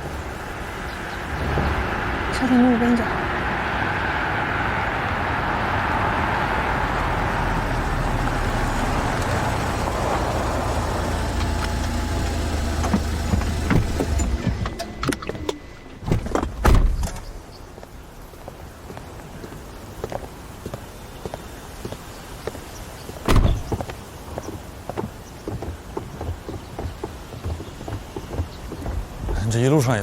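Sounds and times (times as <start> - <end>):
car road and engine rumble: 0.0 - 30.0
car door opening and shutting: 10.7 - 17.4, 23.2 - 23.8.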